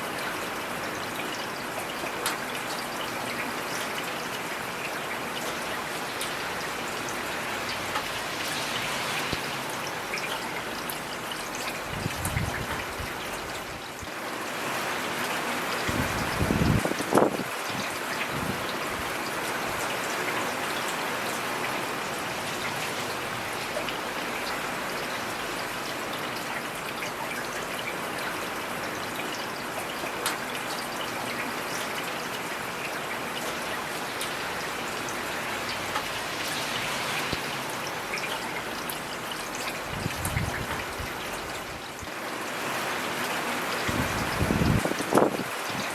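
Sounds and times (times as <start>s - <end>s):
raindrops ticking on surfaces: 0.0s - 45.9s
heavy rain hissing: 6.0s - 10.2s, 33.8s - 45.9s.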